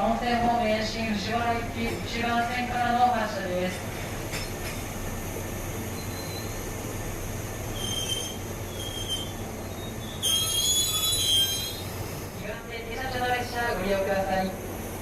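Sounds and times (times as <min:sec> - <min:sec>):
train rumbling: 0:00.0 - 0:15.0
train wheels squealing: 0:06.0 - 0:06.7, 0:07.7 - 0:12.0.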